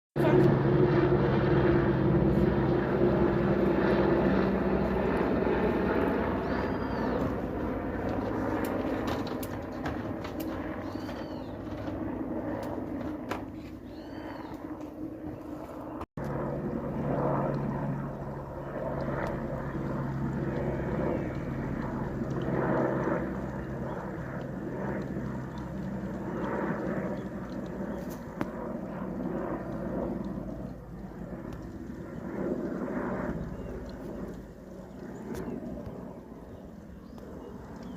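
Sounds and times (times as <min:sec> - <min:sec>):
helicopter passing: 0:00.2 - 0:37.9.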